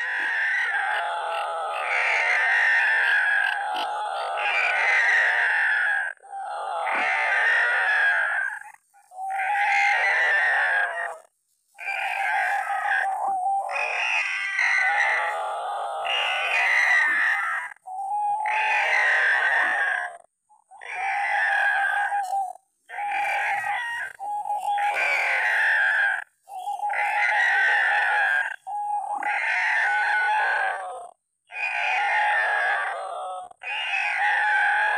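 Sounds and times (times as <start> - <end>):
bird croaking call: 20.7 - 30.5.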